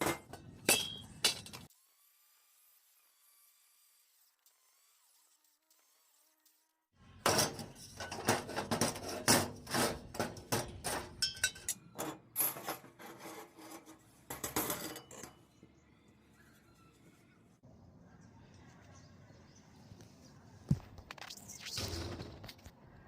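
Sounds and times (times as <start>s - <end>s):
metal knocking and scraping: 0.0s - 1.7s, 7.2s - 15.7s.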